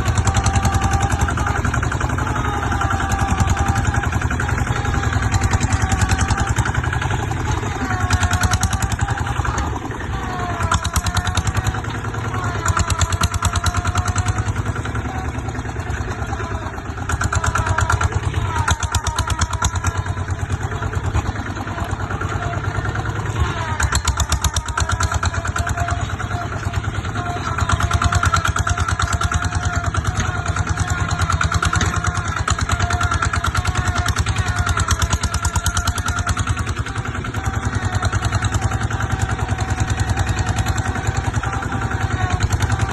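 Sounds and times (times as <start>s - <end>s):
diesel tractor engine chugging: 0.0s - 42.9s.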